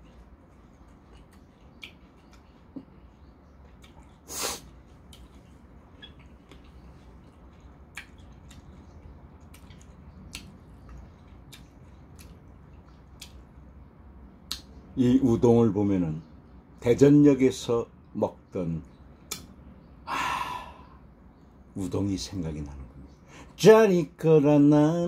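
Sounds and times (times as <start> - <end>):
person chewing food: 0.0 - 13.8
wet mouth clicks: 0.9 - 2.9, 6.0 - 13.5
breathy noise: 20.1 - 21.1.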